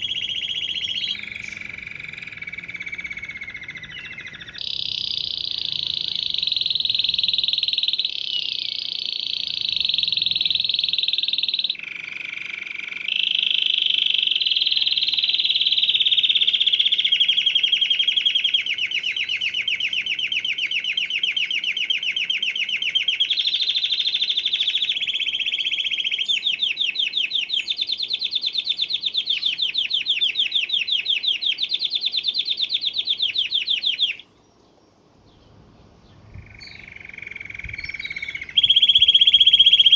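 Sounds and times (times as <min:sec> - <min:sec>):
canary singing trilled rolls: 0:00.0 - 0:39.9.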